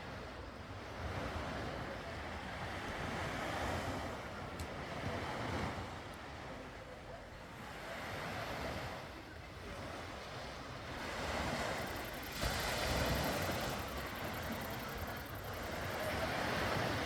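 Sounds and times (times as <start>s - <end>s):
sea waves washing onto shore: 8.0s - 17.0s.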